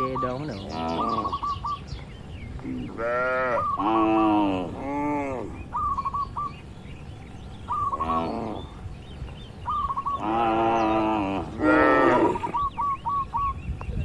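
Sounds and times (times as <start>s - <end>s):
bird chirping: 0.0s - 14.0s
cattle mooing: 2.9s - 5.6s, 10.2s - 12.6s.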